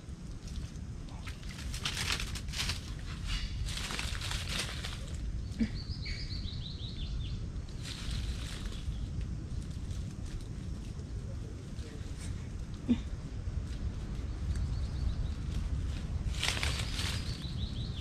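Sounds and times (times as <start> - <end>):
wind rumble on microphone: 0.0 - 18.0
rustling: 0.5 - 5.7, 7.7 - 12.9, 15.5 - 17.6.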